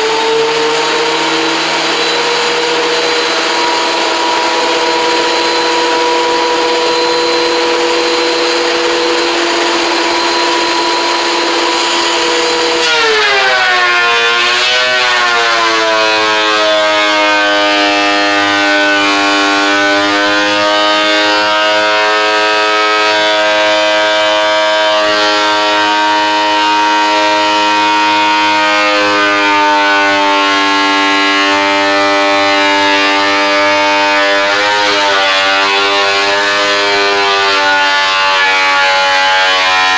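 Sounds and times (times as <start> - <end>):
power tool motor whining: 0.0 - 15.9.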